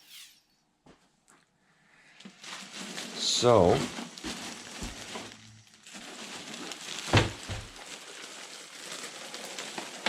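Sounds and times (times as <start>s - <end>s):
packaging rustling: 2.2s - 10.0s.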